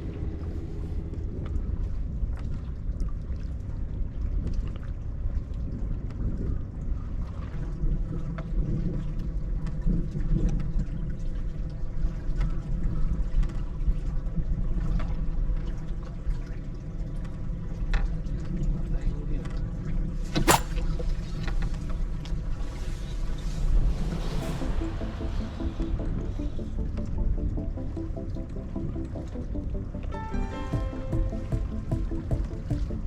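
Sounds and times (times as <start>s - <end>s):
low wind rumble: 0.0s - 14.8s, 21.9s - 33.0s
sharp click: 20.4s - 20.8s.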